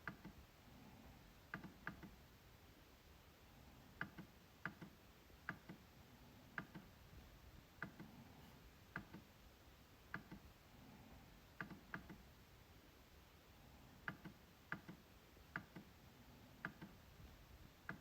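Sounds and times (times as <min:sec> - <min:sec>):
trackpad clicks: 0:01.5 - 0:02.2, 0:04.0 - 0:05.8, 0:06.6 - 0:06.9, 0:07.8 - 0:08.1, 0:08.9 - 0:09.3, 0:10.1 - 0:10.4, 0:11.6 - 0:12.2, 0:14.0 - 0:15.9, 0:16.6 - 0:17.0.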